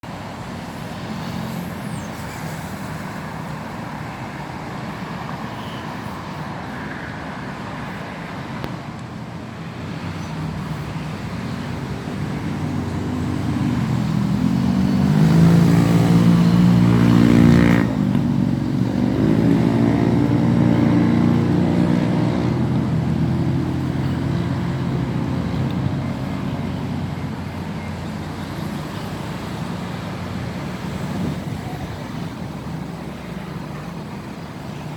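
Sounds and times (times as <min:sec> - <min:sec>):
road traffic: 0:00.0 - 0:34.9
vehicle passing close: 0:10.0 - 0:33.0.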